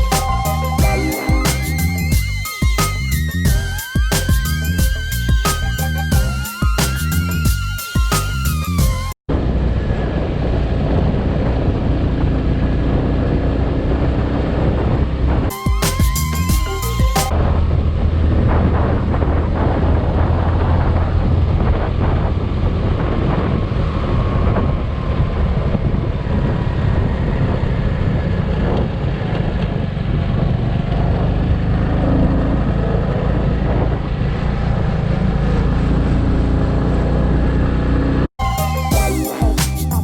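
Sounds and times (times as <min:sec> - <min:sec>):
motorcycle engine drone: 0:00.0 - 0:38.3
wind rushing over microphone: 0:09.3 - 0:15.5, 0:17.3 - 0:38.3.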